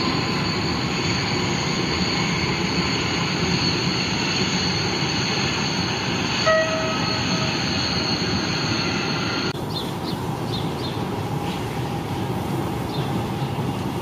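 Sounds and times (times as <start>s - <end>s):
electric trains rumbling with whine: 0.0s - 14.0s
train horn note: 6.4s - 7.5s.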